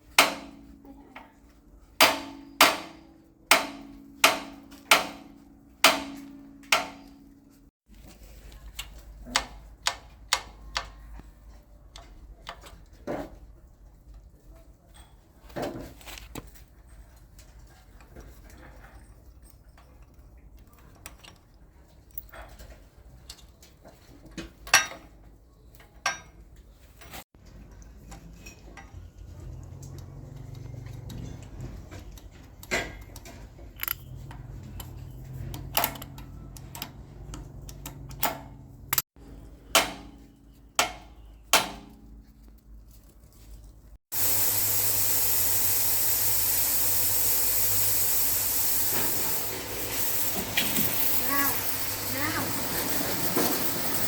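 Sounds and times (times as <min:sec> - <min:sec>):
loud steady hiss: 0:44.2 - 0:54.0.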